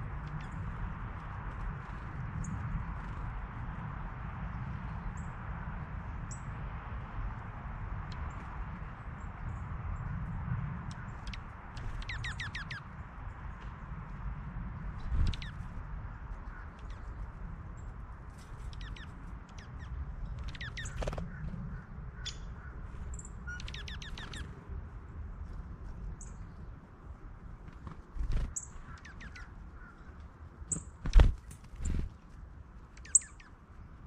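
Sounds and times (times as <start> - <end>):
birds chirping: 10.9 - 13.6, 15.0 - 15.8, 16.4 - 24.6, 28.1 - 34.0.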